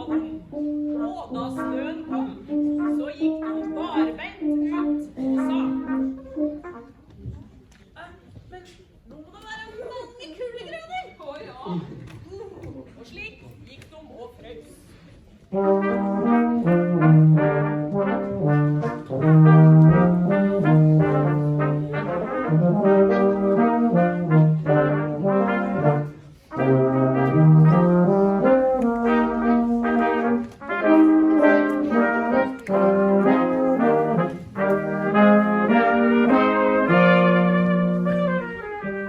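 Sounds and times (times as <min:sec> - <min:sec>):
brass quartet playing chords: 0:00.0 - 0:07.0, 0:15.5 - 0:39.0.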